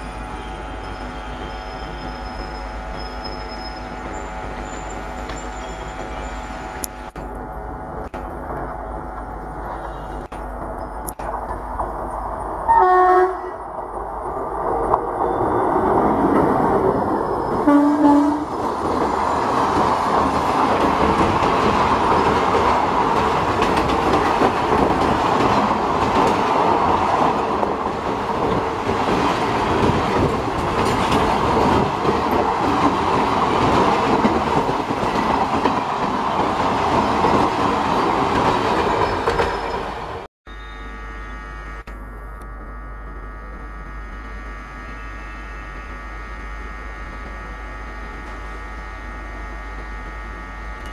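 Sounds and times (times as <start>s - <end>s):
train wheels rumbling on rails: 0.0s - 40.3s
train horn blasts: 12.7s - 13.7s, 17.6s - 18.6s, 40.5s - 41.9s, 43.0s - 50.9s.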